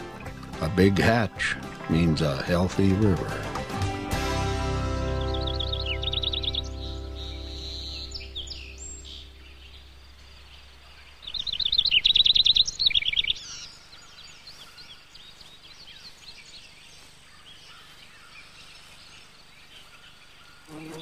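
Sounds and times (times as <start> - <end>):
soft outdoor hiss: 0.0 - 21.0
songbird rapid falling chirps: 0.0 - 21.0
faint bird chirps: 5.0 - 21.0.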